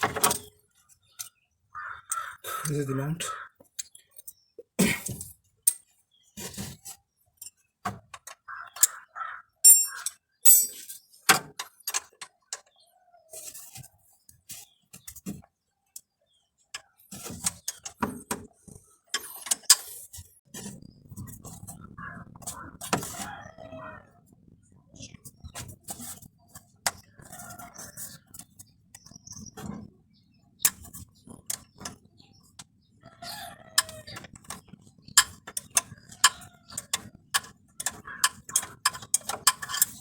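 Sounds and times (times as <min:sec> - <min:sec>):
metallic clinks of tools: 0:09.6 - 0:11.0.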